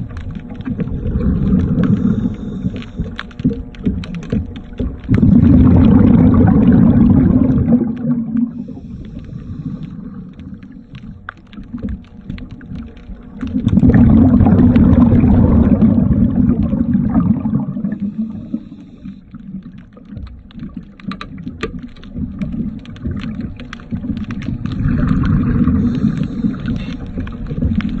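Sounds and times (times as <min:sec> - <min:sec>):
underwater bubbling rumble: 0:00.0 - 0:28.0.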